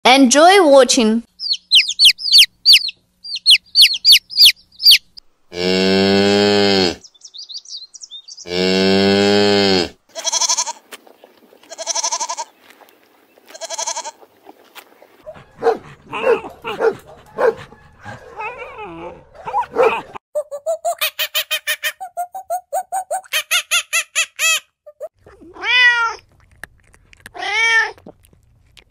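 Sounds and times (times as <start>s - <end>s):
chicks peeping: 1.4s - 5.2s
cow mooing: 5.5s - 7.0s, 8.4s - 10.0s
goat bleating: 9.5s - 10.9s, 11.6s - 12.5s, 13.5s - 14.2s, 25.3s - 26.2s
dog barking: 15.3s - 20.2s.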